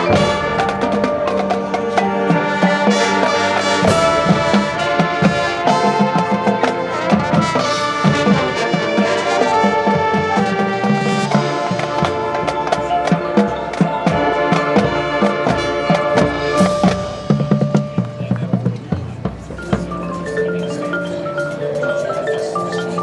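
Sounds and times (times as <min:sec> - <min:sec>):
drum hits: 0:00.0 - 0:22.3
marching band playing: 0:00.0 - 0:23.0
marimba and glockenspiel notes: 0:10.9 - 0:23.0.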